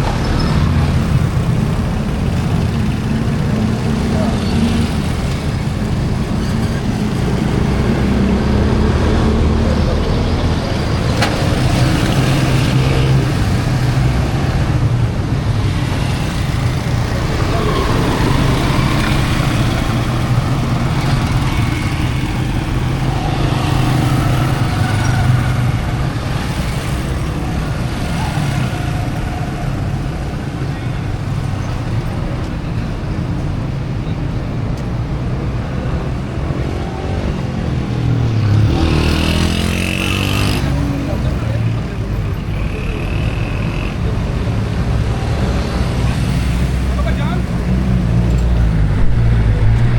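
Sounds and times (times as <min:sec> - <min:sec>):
vehicle engines humming: 0:00.0 - 0:49.9
voices: 0:16.0 - 0:33.5, 0:38.5 - 0:49.9.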